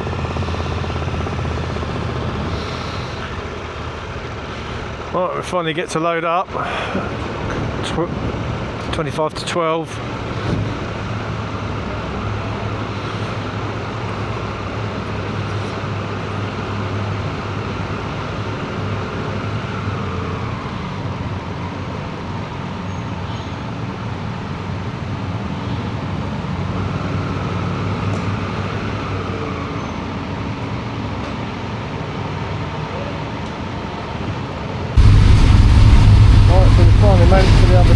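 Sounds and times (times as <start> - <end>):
engine droning: 0.0 - 9.0, 9.9 - 16.5, 35.0 - 37.9.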